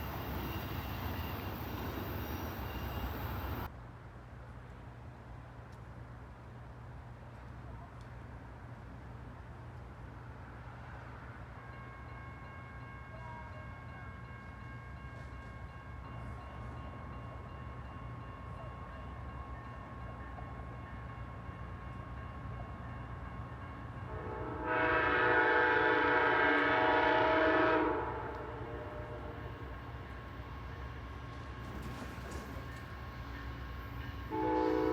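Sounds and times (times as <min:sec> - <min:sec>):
train rumble: 0:00.0 - 0:03.7, 0:06.9 - 0:34.9
locomotive air horn: 0:24.1 - 0:29.8, 0:34.3 - 0:34.9.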